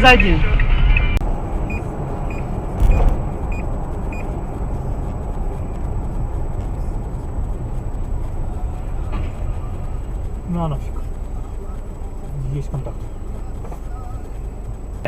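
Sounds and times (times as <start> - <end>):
car engine and road noise: 0.0 - 15.0
car bump: 2.6 - 3.6.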